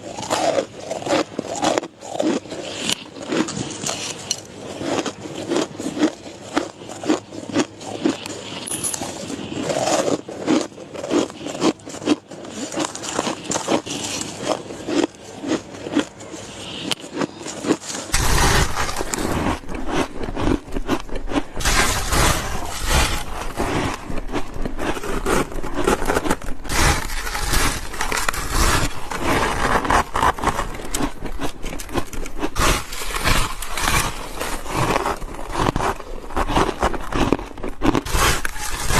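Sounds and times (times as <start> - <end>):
ice crunching and chewing: 0.0 - 38.9
low rumble: 18.1 - 31.3.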